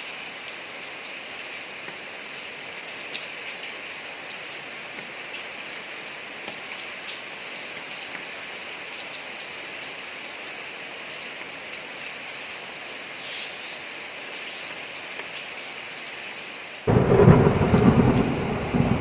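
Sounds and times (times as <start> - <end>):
rain falling on a street: 0.0 - 19.0
thunder clap rumbling: 16.9 - 19.0.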